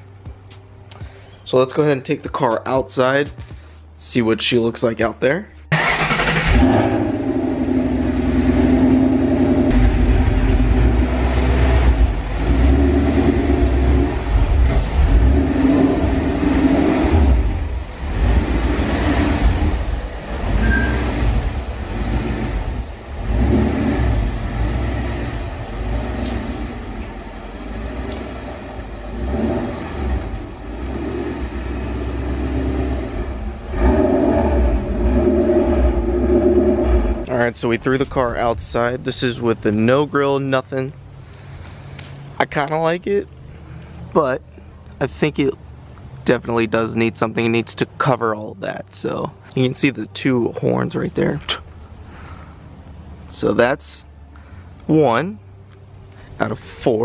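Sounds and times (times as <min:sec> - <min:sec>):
car engine revving: 0:05.7 - 0:38.2.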